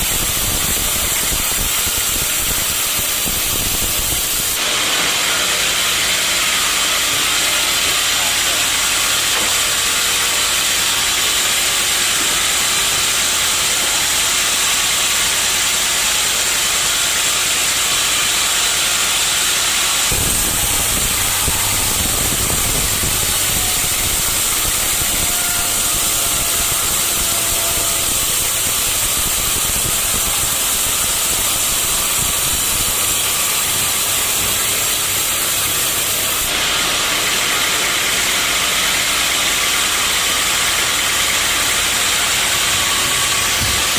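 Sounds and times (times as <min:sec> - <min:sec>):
sawmill saw hissing: 0:00.0 - 0:43.9
deep motor rumble: 0:19.6 - 0:29.4.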